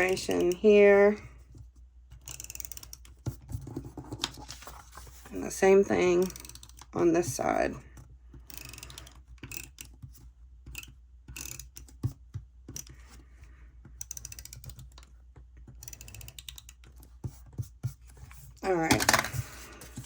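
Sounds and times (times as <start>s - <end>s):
pen ticking and scratching on paper: 15.6s - 18.8s.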